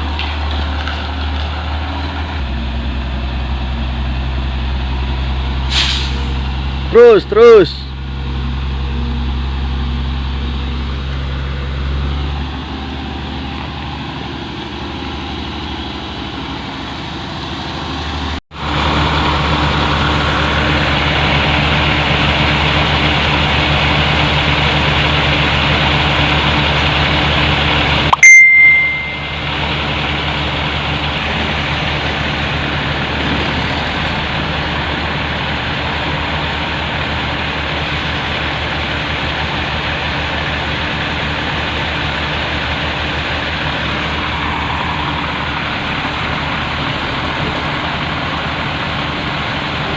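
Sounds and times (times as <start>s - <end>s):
heavy diesel engine running: 0.0s - 28.2s, 28.8s - 49.9s
sharp click with high ring: 28.2s - 29.4s.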